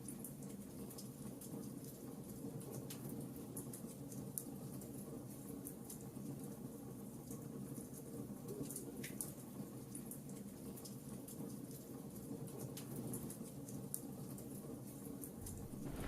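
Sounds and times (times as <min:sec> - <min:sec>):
rain hissing: 0:15.4 - 0:16.0
wood fire crackling and popping: 0:15.4 - 0:16.0.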